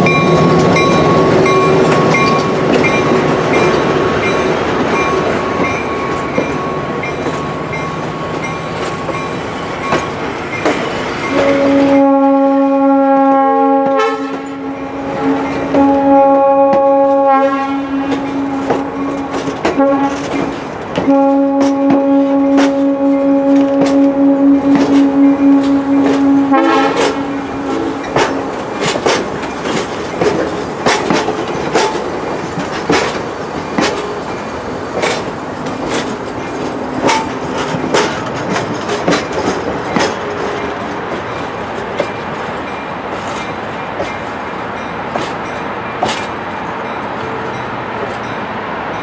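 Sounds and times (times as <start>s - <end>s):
train wheels clicking over rail joints: 0.0s - 12.0s, 17.9s - 49.0s
train rolling rumble: 0.0s - 49.0s
train horn: 11.3s - 28.4s.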